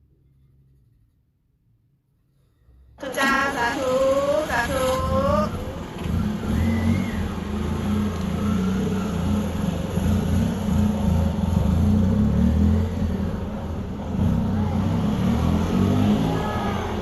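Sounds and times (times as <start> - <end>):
high-pitched voice: 3.0 - 5.6
vehicle running low rumble: 3.0 - 17.0.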